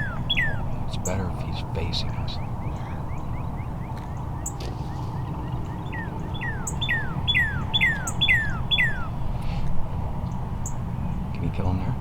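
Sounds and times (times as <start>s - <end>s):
songbird whistling downward notes: 0.0s - 0.7s, 2.3s - 9.2s.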